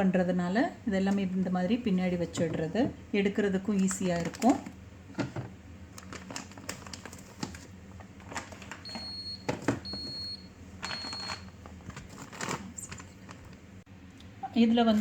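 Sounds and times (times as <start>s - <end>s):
refrigerator alarm beeping: 8.8s - 11.6s.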